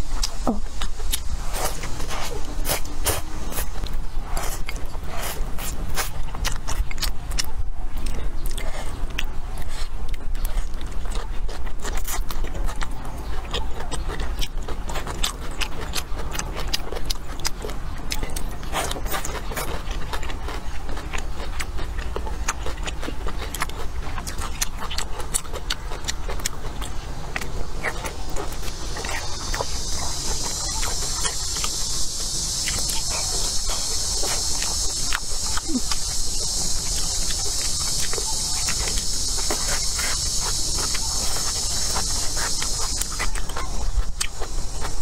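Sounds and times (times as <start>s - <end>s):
crunchy chewing: 0.0s - 45.0s
high-pitched insect drone: 28.2s - 45.0s.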